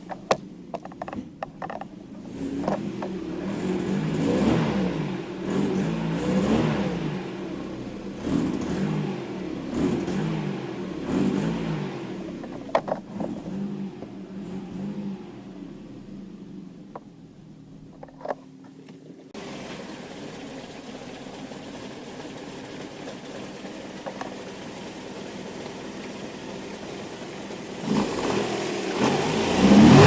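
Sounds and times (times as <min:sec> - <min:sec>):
car engine revs rising and falling: 0:02.2 - 0:16.6, 0:25.1 - 0:30.0.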